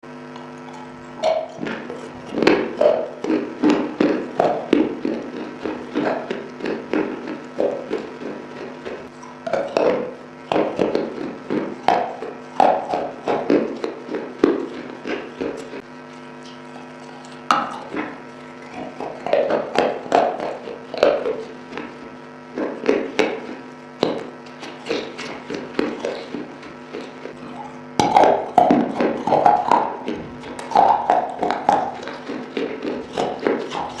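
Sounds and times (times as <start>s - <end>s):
crunching and chewing clay: 0.0s - 34.0s.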